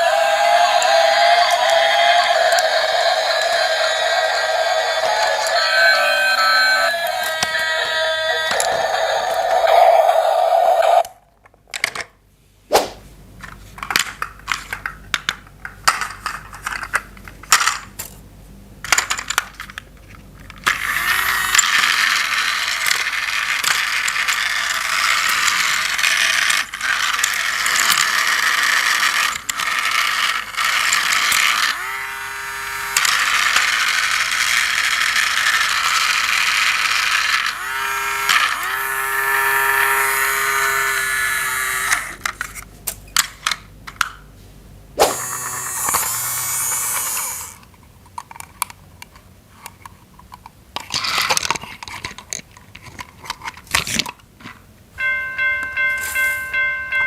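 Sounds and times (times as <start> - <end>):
toy train motor whirring: 0.0 - 11.1, 20.6 - 42.6, 45.0 - 48.4, 55.9 - 56.7
plastic toy parts clicking: 0.7 - 3.8, 13.4 - 18.2, 18.8 - 42.6, 43.2 - 44.2, 45.3 - 54.2.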